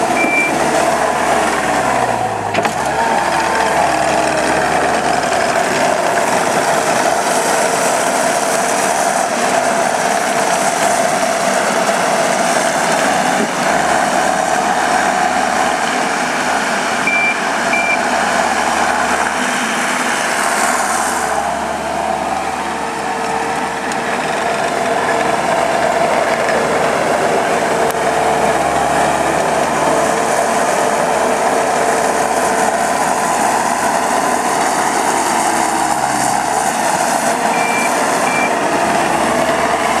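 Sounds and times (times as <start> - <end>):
diesel engine running: 0.0 - 40.0
short high beeps: 0.2 - 0.6, 17.1 - 18.0, 37.5 - 38.5.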